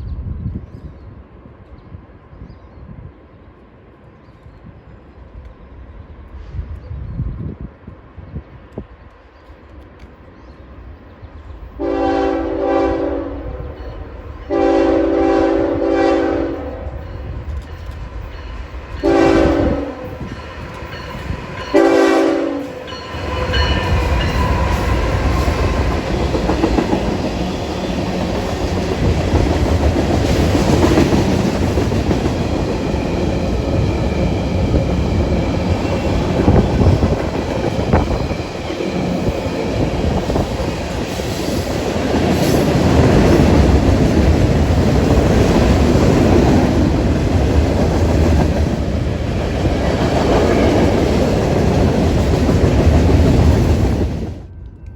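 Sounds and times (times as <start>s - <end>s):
train rumbling past: 0.0s - 54.9s
diesel locomotive horn: 11.8s - 17.3s, 19.0s - 20.4s, 21.7s - 26.0s.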